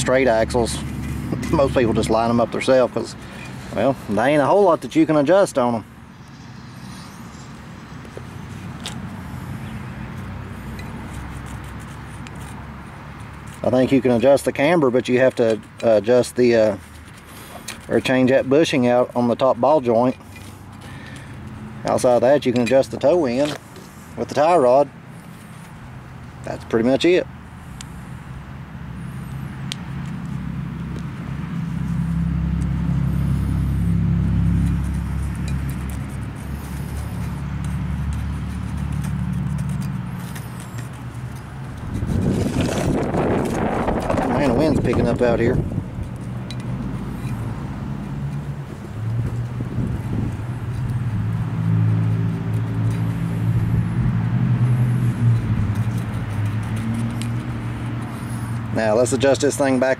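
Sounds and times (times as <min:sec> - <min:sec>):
vehicle engine humming: 0:00.0 - 0:59.9.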